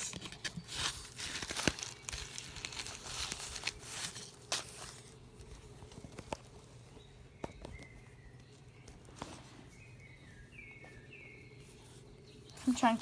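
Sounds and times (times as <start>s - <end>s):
faint bird chirps: 6.8s - 13.0s.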